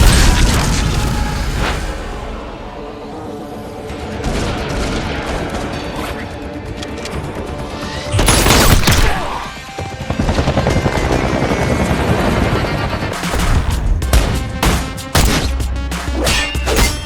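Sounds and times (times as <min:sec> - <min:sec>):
action music score: 0:13.1 - 0:17.0
rapid gunfire: 0:13.1 - 0:17.0.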